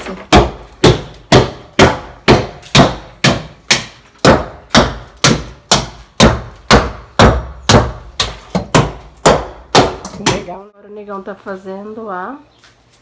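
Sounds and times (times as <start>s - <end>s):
hammer striking: 0.1s - 10.5s.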